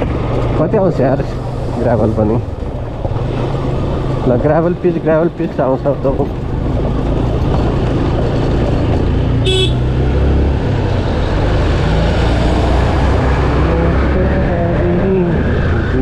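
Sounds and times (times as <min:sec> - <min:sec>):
wind and road rush: 0:00.0 - 0:16.0
horn toot: 0:09.4 - 0:09.9.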